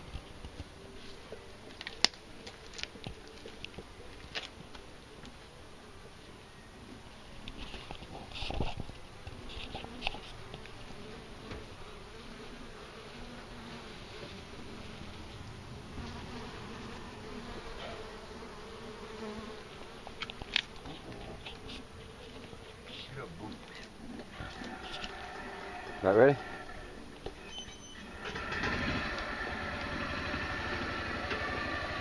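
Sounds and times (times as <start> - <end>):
bees buzzing: 8.9 - 32.0.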